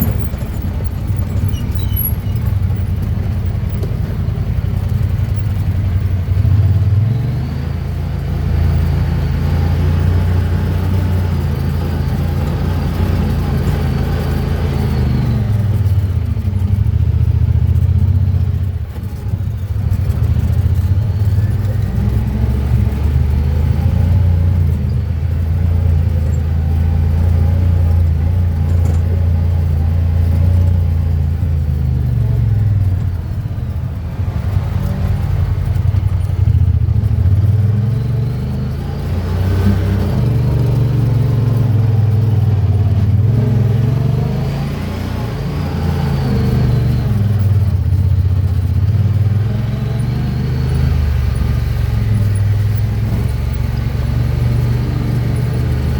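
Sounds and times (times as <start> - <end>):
engine running under changing throttle: 0.0 - 55.9.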